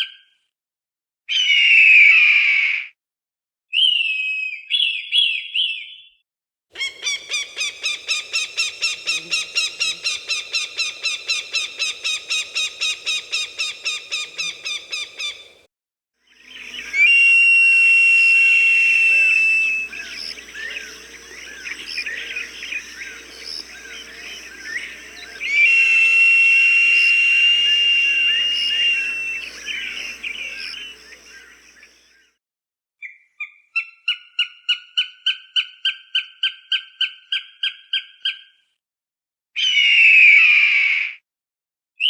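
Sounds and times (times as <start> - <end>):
falcon calls: 6.8 - 15.6, 16.5 - 31.8
small birds chirping: 6.8 - 15.6, 16.3 - 17.4, 18.3 - 32.1.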